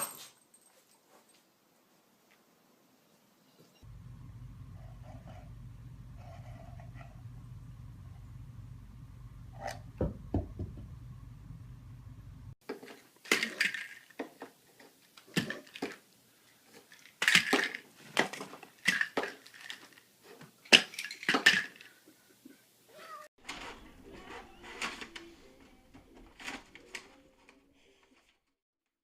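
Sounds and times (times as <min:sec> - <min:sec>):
low hum: 0:03.8 - 0:12.6.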